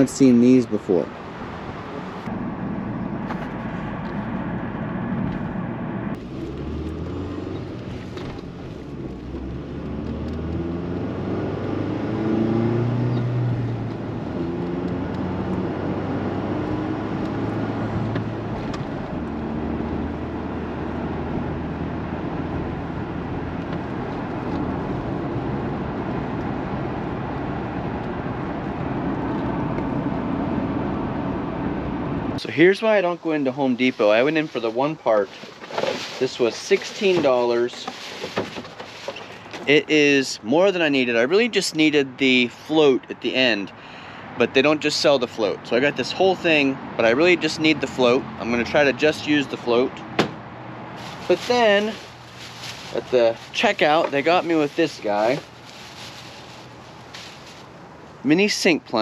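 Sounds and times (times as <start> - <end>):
vehicle engine accelerating: 1.2 - 32.4.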